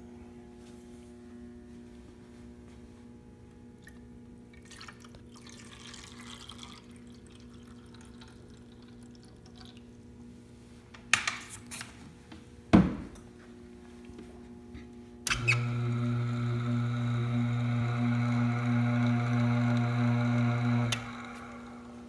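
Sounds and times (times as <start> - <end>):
grinder humming: 15.3 - 22.0.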